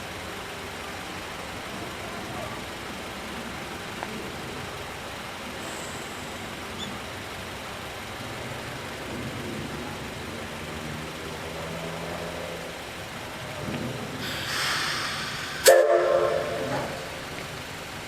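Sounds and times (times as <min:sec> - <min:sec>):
steam hissing: 0:05.5 - 0:07.0, 0:14.0 - 0:18.0
steam whistle blast: 0:14.2 - 0:17.2.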